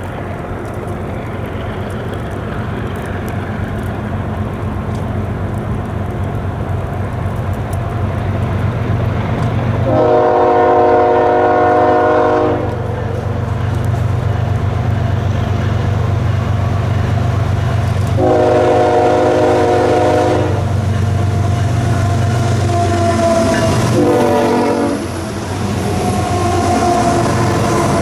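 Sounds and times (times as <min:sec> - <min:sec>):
diesel engine rumble: 0:00.0 - 0:28.0
moving train: 0:00.0 - 0:28.0
locomotive air horn blasts: 0:09.8 - 0:13.2, 0:18.1 - 0:20.8, 0:21.8 - 0:25.4, 0:26.2 - 0:28.0.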